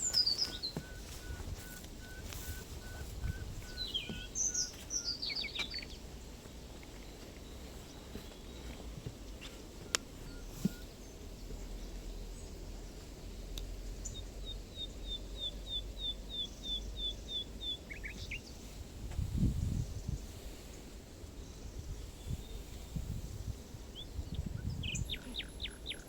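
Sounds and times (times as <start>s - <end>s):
small bird calling: 0.0s - 12.5s, 14.0s - 18.8s, 23.6s - 26.0s
low outdoor rumble: 0.0s - 26.0s.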